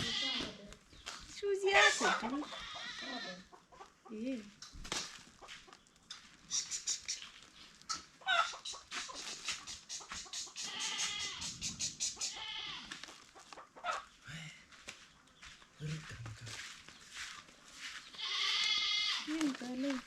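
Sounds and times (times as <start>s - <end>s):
goat bleating: 0.0s - 0.6s, 1.7s - 3.5s, 10.4s - 13.0s, 18.2s - 19.3s
chickens clucking: 0.0s - 14.2s.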